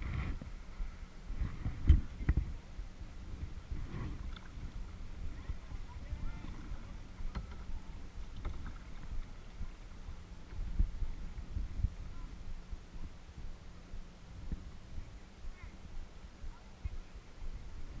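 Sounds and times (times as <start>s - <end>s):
wind rumble: 0.0s - 18.0s
water sloshing: 3.6s - 10.7s
paddle knocking against kayak: 7.2s - 9.4s.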